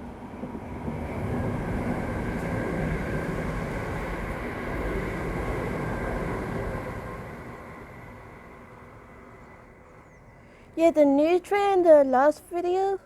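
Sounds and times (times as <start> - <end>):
wheels rumbling on rails: 0.0 - 10.1.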